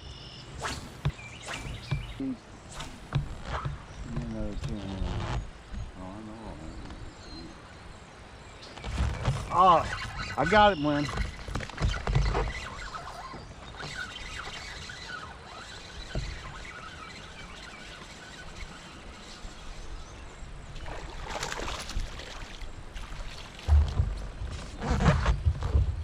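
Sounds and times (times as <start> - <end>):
water sloshing and splashing: 8.7 - 26.0
knocks on kayak: 23.6 - 24.3.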